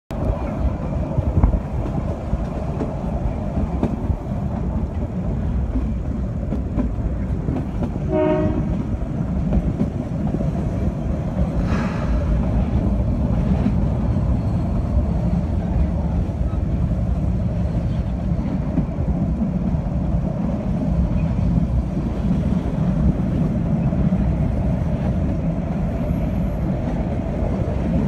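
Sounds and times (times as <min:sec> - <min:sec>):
train carriage rumbling on track: 0:00.1 - 0:28.0
train horn blast: 0:08.0 - 0:08.9.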